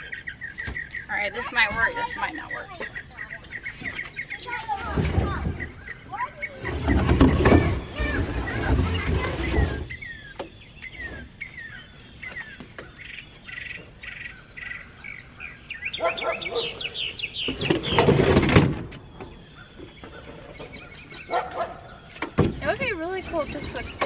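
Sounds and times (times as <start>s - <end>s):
songbirds chirping: 0.0s - 24.0s
furniture scraping on wooden deck: 6.5s - 10.3s, 19.9s - 23.8s.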